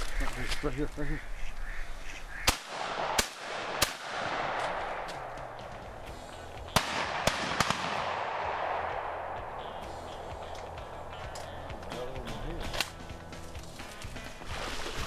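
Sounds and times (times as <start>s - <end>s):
shotguns firing: 2.5s - 6.0s, 6.7s - 11.5s.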